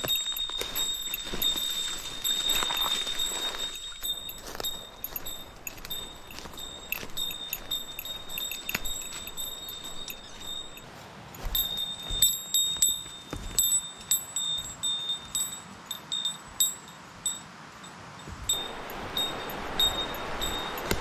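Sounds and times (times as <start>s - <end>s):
small metal bell jingling: 0.0s - 17.5s, 18.2s - 21.0s
steady rushing noise: 18.6s - 21.0s.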